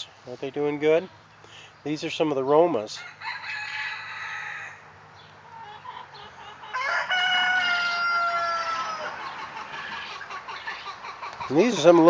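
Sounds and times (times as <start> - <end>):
rooster crowing: 3.0 - 4.9, 5.8 - 10.2.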